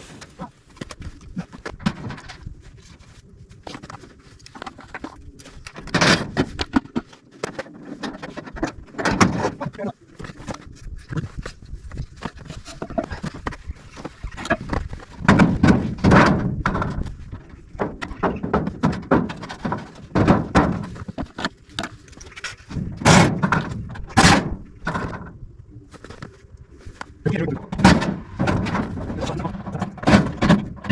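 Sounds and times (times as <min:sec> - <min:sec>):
cladding sheet knocking and rattling: 0:14.5 - 0:21.3.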